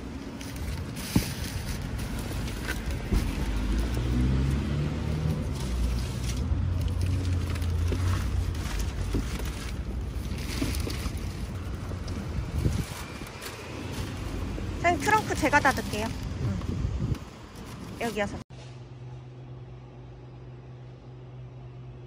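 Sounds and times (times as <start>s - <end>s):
newspaper rustling and crinkling: 0.0s - 4.4s, 5.2s - 16.4s
car engine rumbling: 0.0s - 22.0s.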